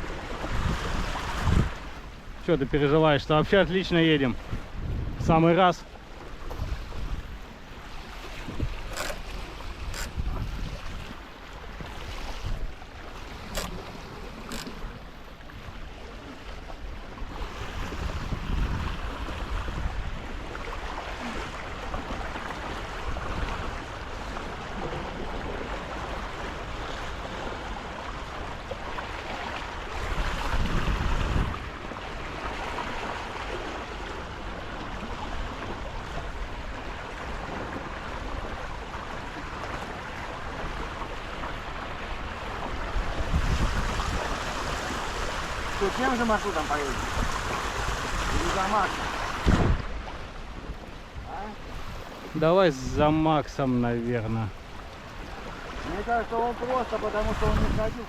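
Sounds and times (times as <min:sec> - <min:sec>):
wind buffeting microphone: 0:00.0 - 0:16.0, 0:17.2 - 0:27.3, 0:29.9 - 0:33.2, 0:34.0 - 0:53.2, 0:54.4 - 0:58.0
water rushing along hulls: 0:00.0 - 0:58.0.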